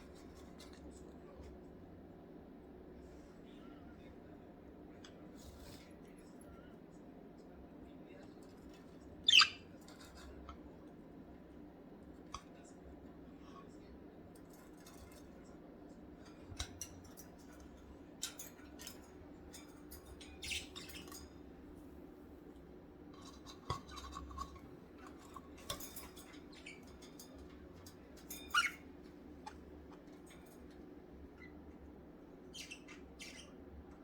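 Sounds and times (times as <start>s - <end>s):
budgerigars chirping: 9.3s - 9.6s.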